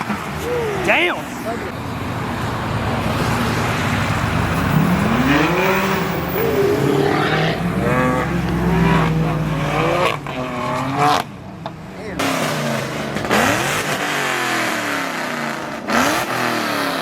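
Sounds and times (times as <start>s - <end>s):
road and tyre noise: 0.0s - 17.0s
sports car engine accelerating: 1.8s - 11.4s.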